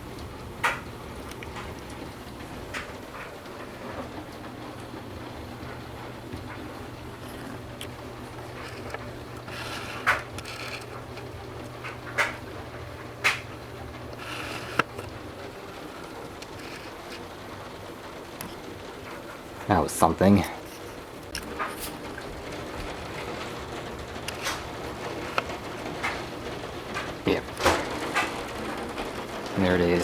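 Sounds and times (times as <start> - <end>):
steady low hum: 0.0 - 19.7
torrential rain pouring: 0.0 - 30.0.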